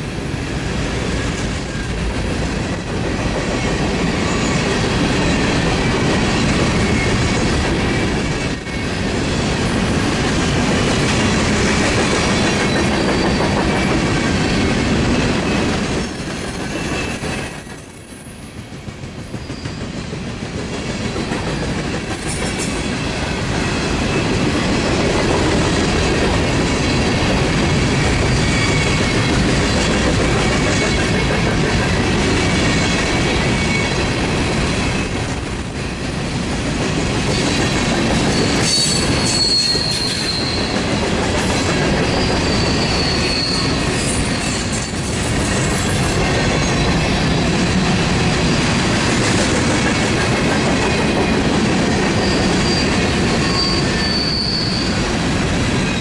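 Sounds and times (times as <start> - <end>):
freight train wheels rumbling: 0.0 - 56.0
high-pitched wheel squeals: 28.0 - 29.2, 38.3 - 40.8, 42.1 - 45.0, 52.2 - 55.0.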